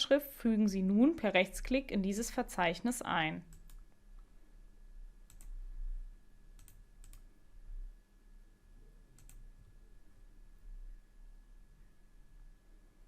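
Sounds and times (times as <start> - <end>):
faint low hum: 0.0 - 13.0
computer mouse clicks: 3.5 - 3.8, 5.2 - 5.6, 6.6 - 7.3, 9.2 - 9.4.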